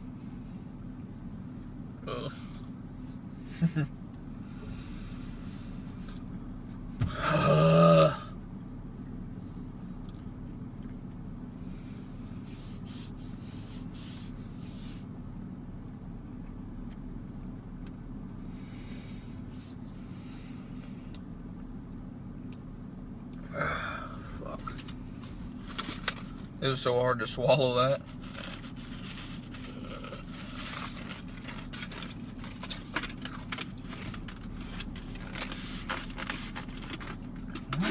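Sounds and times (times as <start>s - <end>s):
steady low hum: 0.0s - 37.9s
man groaning: 2.0s - 2.6s, 7.0s - 8.3s, 23.4s - 24.4s
faint rustles: 28.0s - 37.9s.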